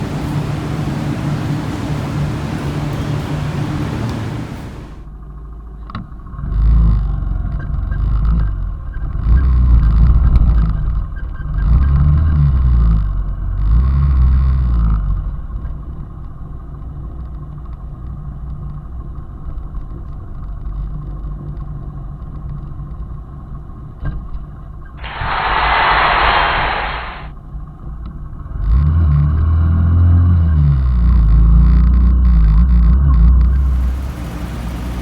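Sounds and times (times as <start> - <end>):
motorcycle engine running: 33.4 - 35.0.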